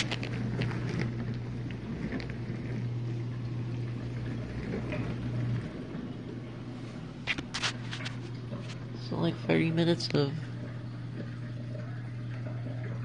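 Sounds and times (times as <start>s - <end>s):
dishwasher motor hum: 0.0s - 13.0s.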